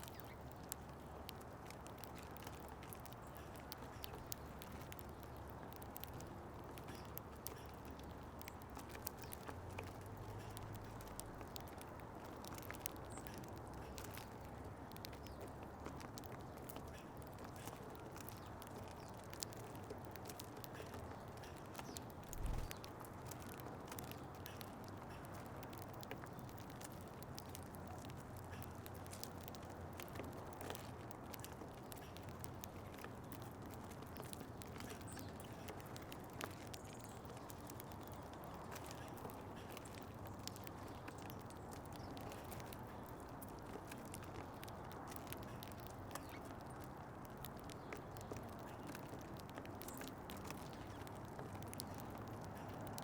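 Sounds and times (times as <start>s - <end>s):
birds pecking seed: 0.0s - 53.0s
low background rumble: 22.2s - 22.8s.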